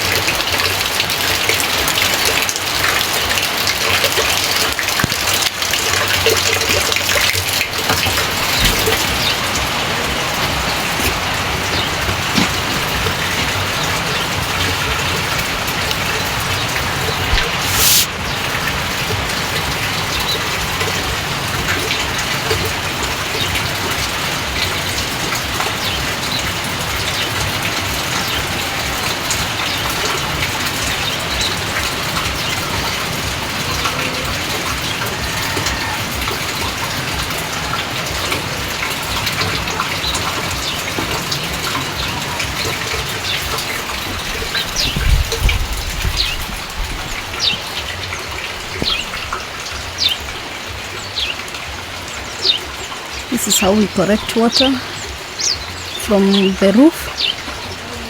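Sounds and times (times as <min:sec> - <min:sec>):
rain falling: 0:00.0 - 0:58.0
raindrops ticking on surfaces: 0:00.0 - 0:58.0
high-pitched hiss: 0:17.3 - 0:18.2.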